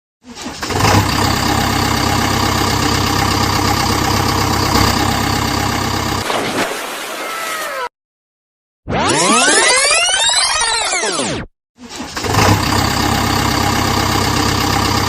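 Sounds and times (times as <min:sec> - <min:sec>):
vehicle engine idling: 0:00.8 - 0:06.2, 0:12.3 - 0:15.0.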